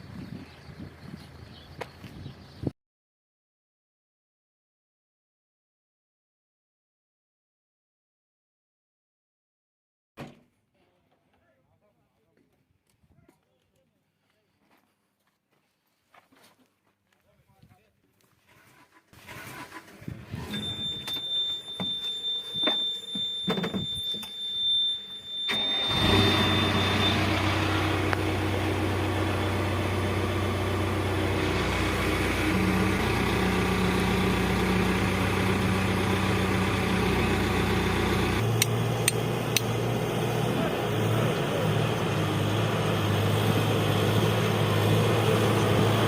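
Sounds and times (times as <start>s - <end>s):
engine starting and running: 18.5s - 46.0s
steady high beep: 20.6s - 27.8s.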